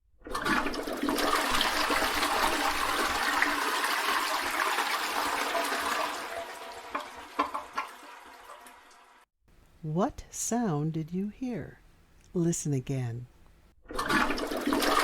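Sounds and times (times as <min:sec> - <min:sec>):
toilet flushing: 0:00.2 - 0:09.3, 0:13.9 - 0:15.0.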